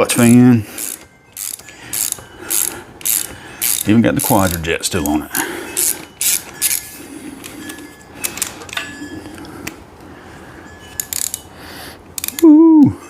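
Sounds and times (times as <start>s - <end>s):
socket wrench metallic clicks: 12.2s - 12.4s.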